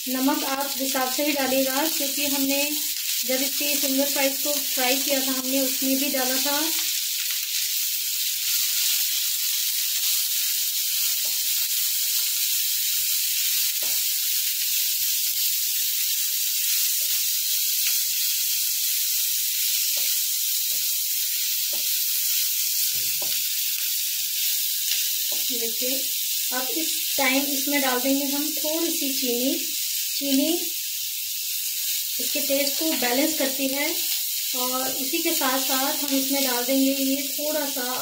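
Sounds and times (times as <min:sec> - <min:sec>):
vegetables sizzling in hot oil: 0:00.0 - 0:38.0
spatula tapping pan: 0:21.6 - 0:22.0.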